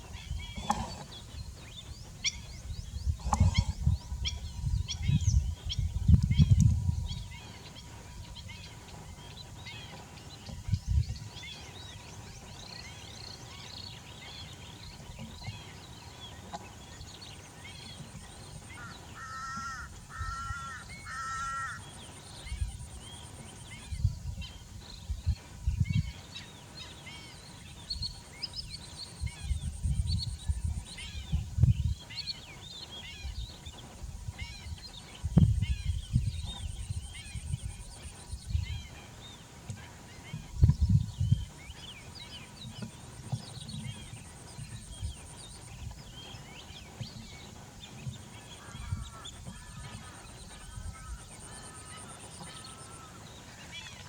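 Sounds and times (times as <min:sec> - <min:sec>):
birds chirping: 0:00.0 - 0:54.0
bird honking calls: 0:18.7 - 0:22.0, 0:48.4 - 0:54.0.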